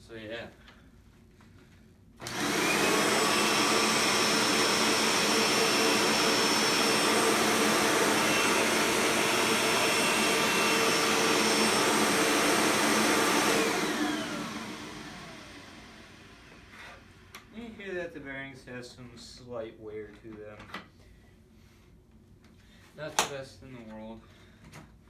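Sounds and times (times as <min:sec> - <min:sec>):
vacuum cleaner motor whining: 0:02.2 - 0:17.5.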